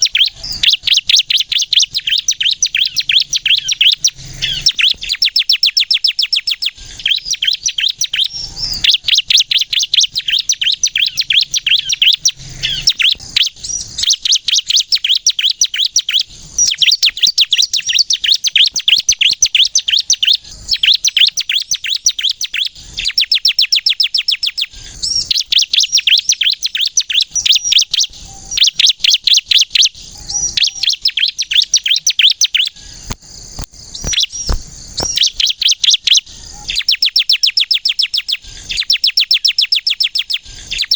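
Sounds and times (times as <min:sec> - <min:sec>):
bird singing rapid high notes: 0:00.0 - 0:33.2, 0:33.9 - 0:40.9.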